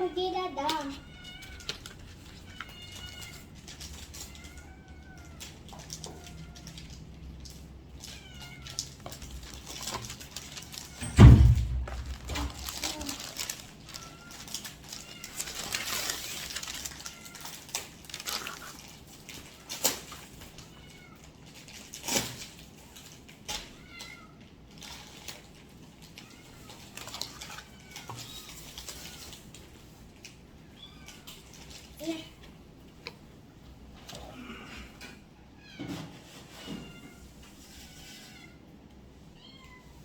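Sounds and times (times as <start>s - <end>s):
rustling: 0.1s - 23.8s
knocks: 11.0s - 12.7s.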